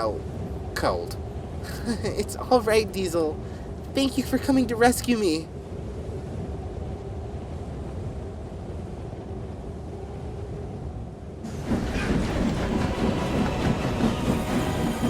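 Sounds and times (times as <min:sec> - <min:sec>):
train running on rails: 0:11.4 - 0:15.0.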